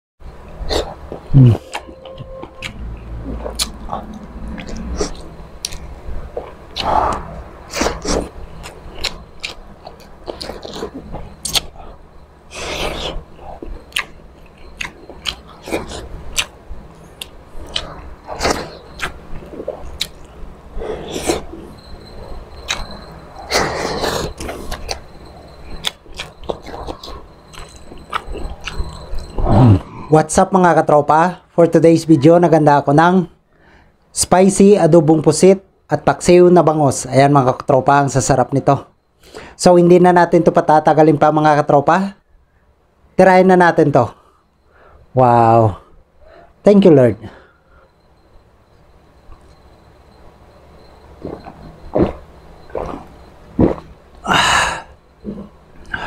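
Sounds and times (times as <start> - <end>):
person chewing and biting: 0.6 - 11.8, 12.6 - 16.6, 17.2 - 20.3, 22.6 - 25.0, 25.6 - 29.8, 51.2 - 54.0.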